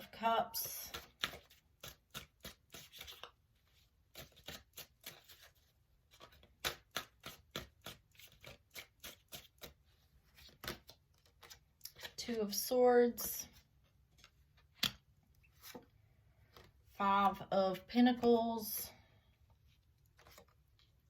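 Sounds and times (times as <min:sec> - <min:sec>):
cards being shuffled: 0:00.7 - 0:12.4, 0:13.5 - 0:15.9, 0:20.0 - 0:21.0.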